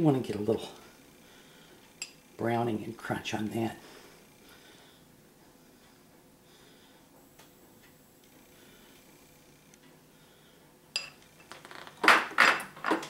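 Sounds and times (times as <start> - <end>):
sharp ringing clink: 11.0 - 11.2.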